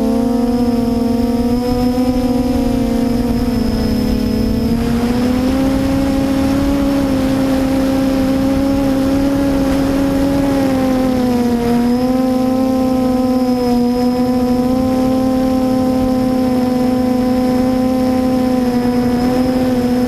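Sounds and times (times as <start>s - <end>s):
wind buffeting: 0.0s - 14.8s
quadcopter propellers whining: 0.0s - 20.0s.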